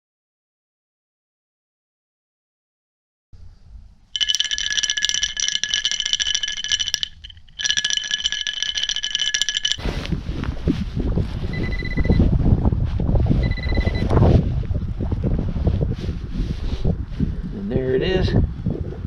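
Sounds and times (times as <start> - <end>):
wind noise on microphone: 9.8 - 19.0
short beep: 11.6 - 12.2, 13.4 - 14.0.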